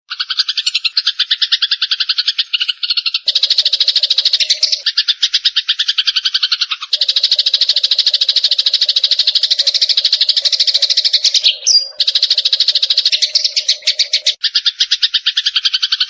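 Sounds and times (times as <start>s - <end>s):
sparrows chattering: 0.1s - 16.0s.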